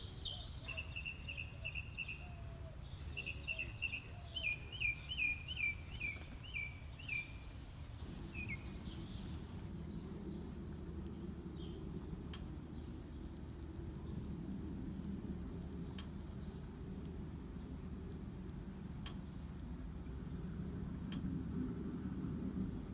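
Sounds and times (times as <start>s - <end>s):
songbird chirping and whistling: 0.0s - 9.6s
low background rumble: 0.0s - 22.9s.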